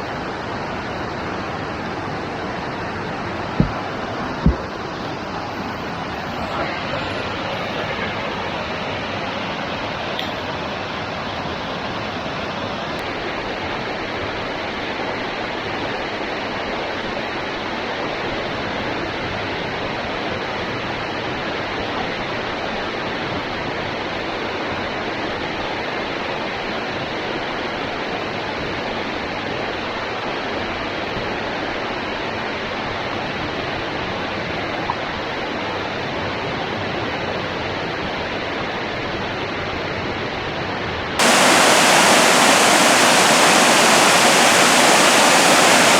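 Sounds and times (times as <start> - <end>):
waterfall rushing: 41.2 - 45.9.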